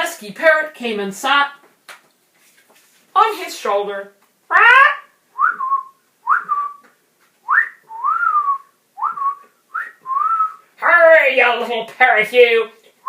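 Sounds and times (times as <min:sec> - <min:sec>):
person squawking like a parrot: 0:04.5 - 0:05.7
person whistling like a parrot: 0:05.4 - 0:10.6.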